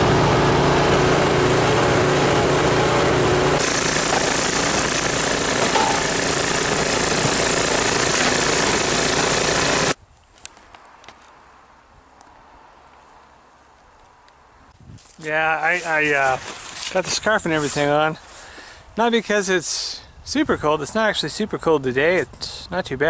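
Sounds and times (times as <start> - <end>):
snowblower engine running: 0.0 - 10.0.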